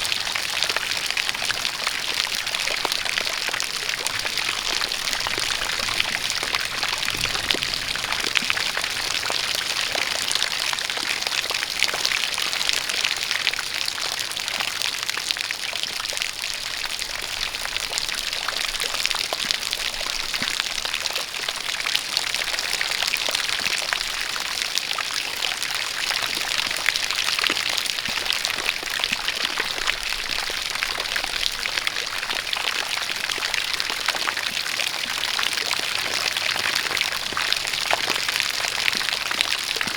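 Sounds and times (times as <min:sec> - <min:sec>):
rain falling: 0:00.0 - 0:14.4
water pouring from spout: 0:00.0 - 0:15.8.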